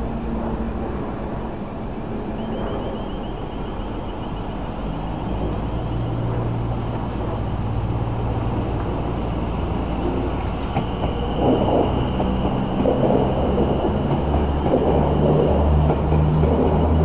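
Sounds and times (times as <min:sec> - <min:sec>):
electric train rumble: 0:00.0 - 0:17.0
faint high wavering whine: 0:00.0 - 0:17.0.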